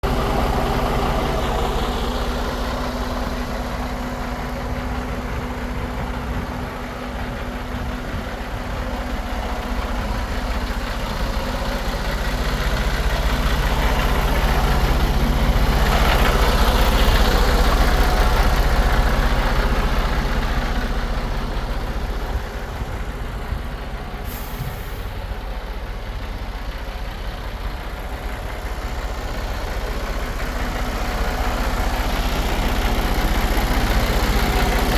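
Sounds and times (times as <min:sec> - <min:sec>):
diesel truck engine idling: 0:00.0 - 0:34.9
sharp hiss of air: 0:24.2 - 0:25.2.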